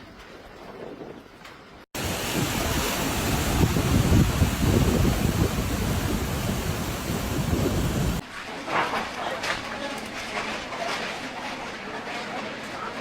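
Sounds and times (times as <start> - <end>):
storm wind rushing: 2.0 - 8.2
wind gusts buffeting microphone: 2.0 - 8.2.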